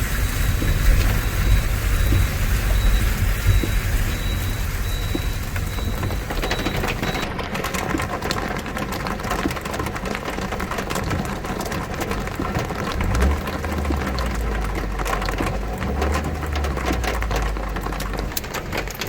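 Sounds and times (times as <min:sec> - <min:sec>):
heavy rain pouring: 0:00.0 - 0:19.0
low rumble: 0:12.9 - 0:18.5.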